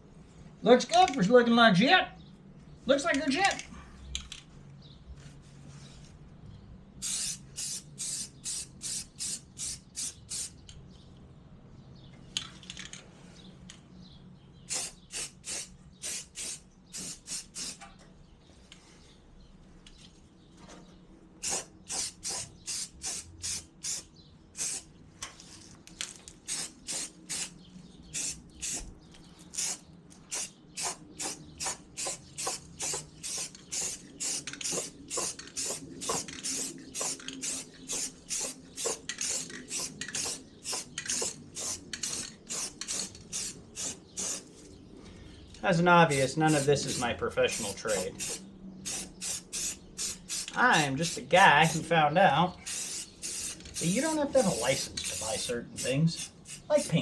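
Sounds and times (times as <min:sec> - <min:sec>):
spray paint hissing: 0:07.0 - 0:10.6, 0:14.7 - 0:17.8, 0:21.4 - 0:24.9, 0:26.4 - 0:44.5, 0:46.1 - 0:51.8, 0:52.6 - 0:57.0.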